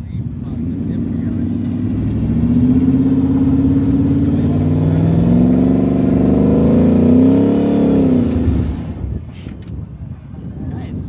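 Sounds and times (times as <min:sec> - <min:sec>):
truck engine revving hard: 0:00.2 - 0:09.3.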